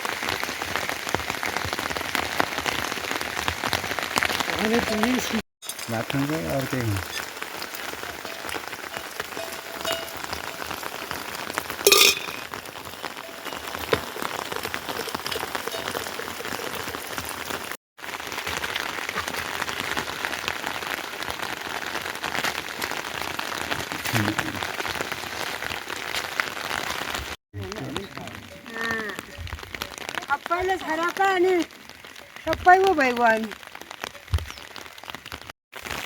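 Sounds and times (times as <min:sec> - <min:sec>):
heavy rain falling: 0:00.0 - 0:36.0
brief voice: 0:24.2 - 0:24.6.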